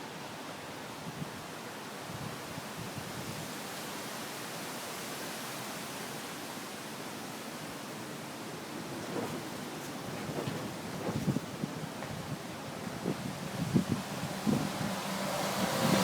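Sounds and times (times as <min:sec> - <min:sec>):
strong wind hissing: 0:08.4 - 0:16.0
wind buffeting microphone: 0:08.5 - 0:16.0.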